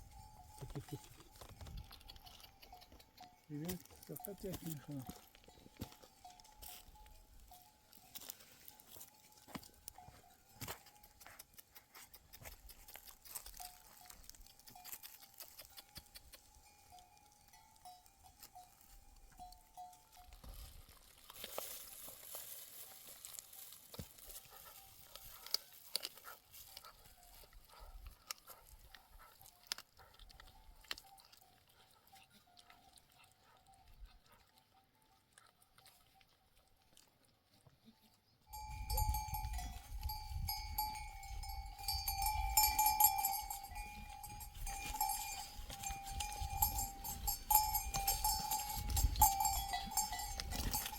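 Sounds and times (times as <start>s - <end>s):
livestock bells clanking: 0.0s - 11.3s, 12.9s - 20.6s, 38.5s - 50.9s.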